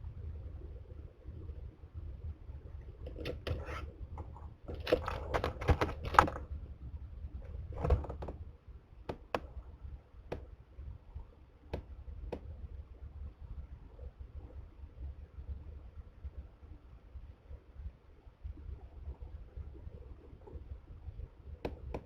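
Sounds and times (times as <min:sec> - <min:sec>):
low steady hum: 0:00.0 - 0:22.0
bird scraping and knocking on wood: 0:03.1 - 0:06.5, 0:07.8 - 0:08.4.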